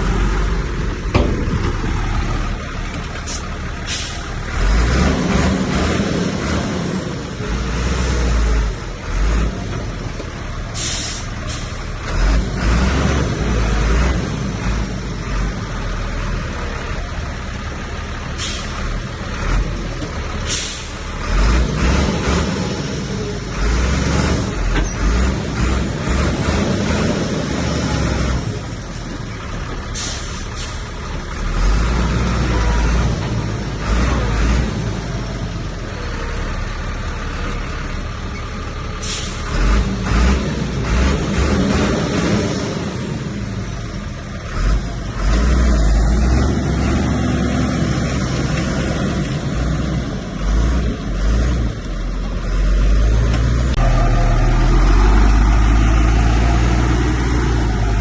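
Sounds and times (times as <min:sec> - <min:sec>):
diesel machinery engine rumble: 0:00.0 - 0:58.0.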